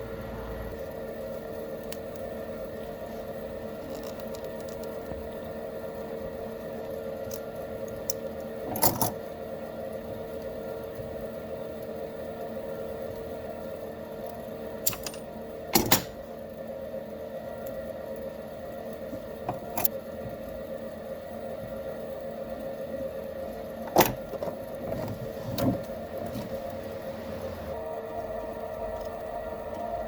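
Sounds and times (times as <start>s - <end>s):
electric motor humming: 24.7s - 30.0s.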